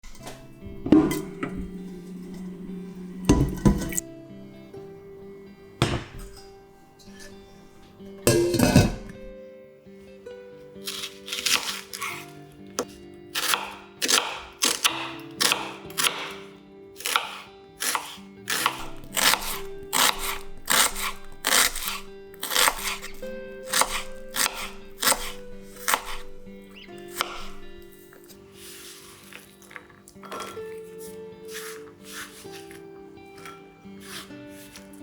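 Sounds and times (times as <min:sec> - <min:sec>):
soft background music: 0:00.0 - 0:35.0
knife slicing vegetables on board: 0:10.8 - 0:35.0.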